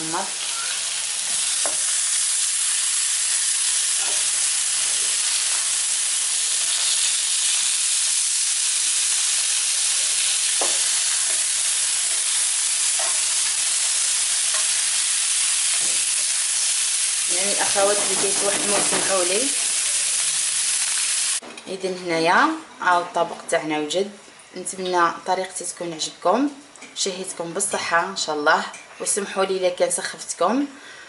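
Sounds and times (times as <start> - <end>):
food sizzling in oil: 0.0 - 21.4.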